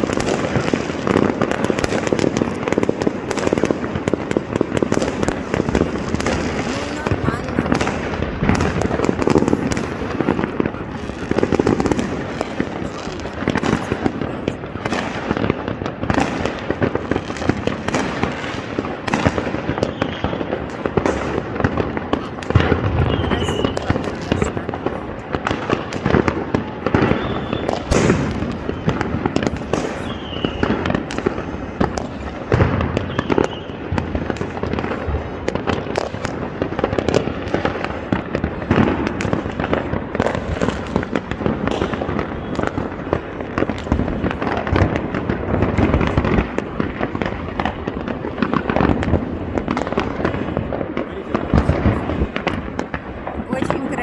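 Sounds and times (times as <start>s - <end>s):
fireworks bangs and crackling: 0.0s - 54.0s
firework whistles: 19.7s - 20.4s, 26.9s - 30.9s, 33.0s - 33.8s.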